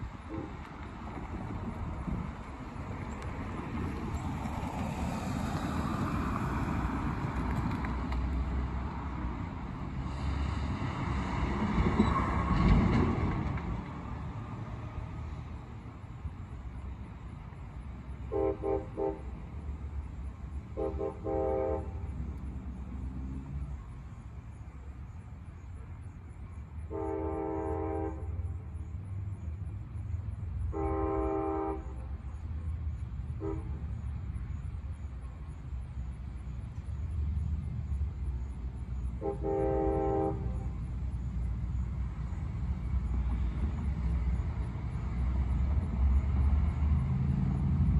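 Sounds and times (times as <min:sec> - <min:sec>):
train rumbling: 0:00.0 - 0:47.9
locomotive air horn blasts: 0:18.2 - 0:19.4, 0:20.8 - 0:22.1, 0:26.9 - 0:28.4, 0:30.7 - 0:32.1, 0:33.4 - 0:33.8, 0:39.2 - 0:40.8.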